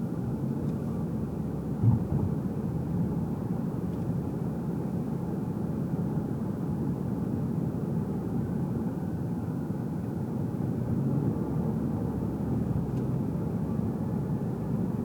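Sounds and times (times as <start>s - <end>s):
road and engine rumble: 0.0s - 15.0s
brief thump: 1.8s - 2.3s.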